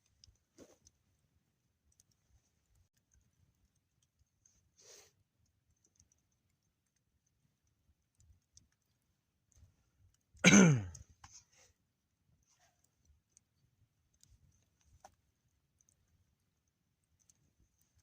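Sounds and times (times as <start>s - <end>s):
soft rustle: 0.0s - 3.6s, 11.1s - 18.0s
faint clicks: 0.0s - 11.7s, 12.3s - 18.0s
man's cough-like vocal sound: 10.4s - 11.0s.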